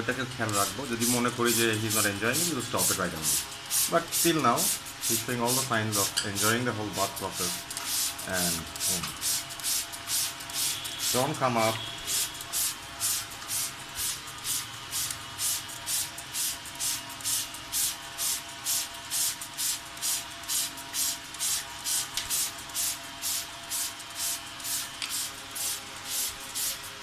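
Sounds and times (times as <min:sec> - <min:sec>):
spray bottle hissing bursts: 0:07.3 - 0:11.2, 0:11.8 - 0:27.0.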